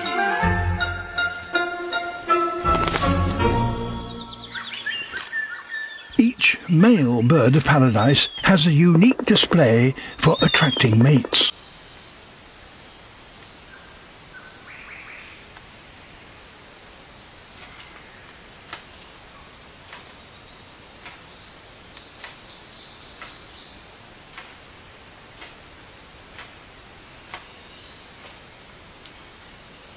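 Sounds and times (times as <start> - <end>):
insects buzzing: 1.2 - 29.9
sharp clicks: 7.4 - 11.5.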